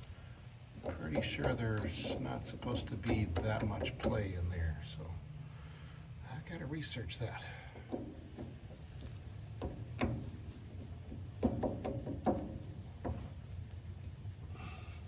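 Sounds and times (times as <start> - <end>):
steady low hum: 0.0 - 15.0
light metallic knocks and clunks: 0.8 - 4.3, 7.7 - 13.8.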